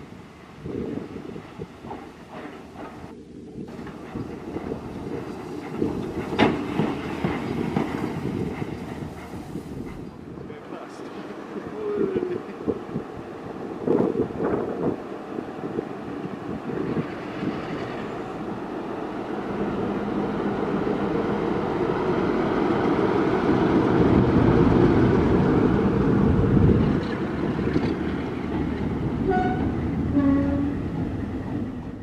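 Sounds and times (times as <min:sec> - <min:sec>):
train rumbling: 0:00.0 - 0:32.0
locomotive horn toots: 0:29.2 - 0:30.9.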